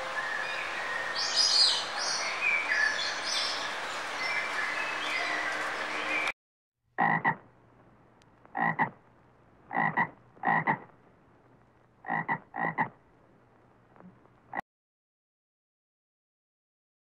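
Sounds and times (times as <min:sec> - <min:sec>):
frog croaking: 0:07.0 - 0:07.4, 0:08.5 - 0:09.0, 0:09.7 - 0:11.0, 0:12.0 - 0:13.0.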